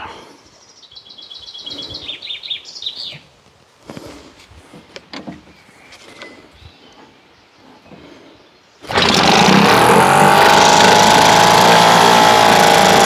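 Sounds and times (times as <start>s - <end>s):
songbird chirping: 0.0s - 3.8s, 4.8s - 8.9s.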